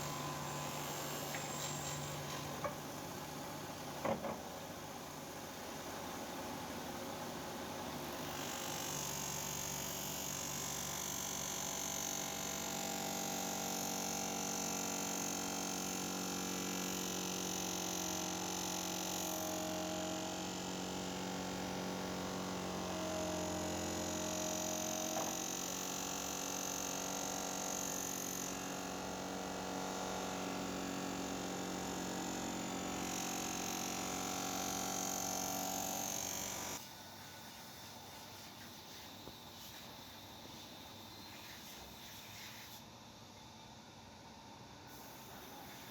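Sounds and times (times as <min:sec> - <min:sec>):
power tool motor humming: 0:22.4 - 0:36.8.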